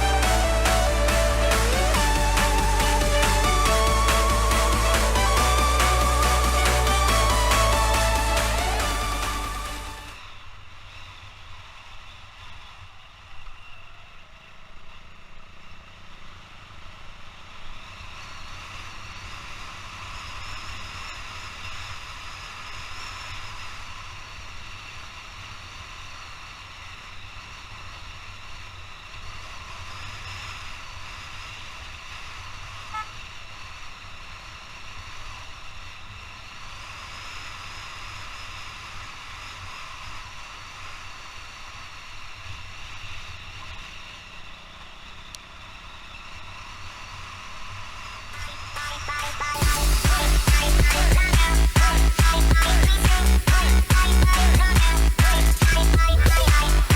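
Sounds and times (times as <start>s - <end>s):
motorcycle engine drone: 0.0s - 56.9s.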